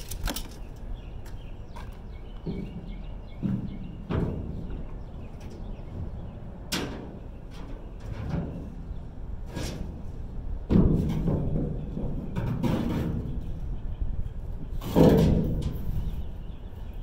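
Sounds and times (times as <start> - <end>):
scrap metal thudding and clanking: 9.4 - 13.5, 14.8 - 16.0.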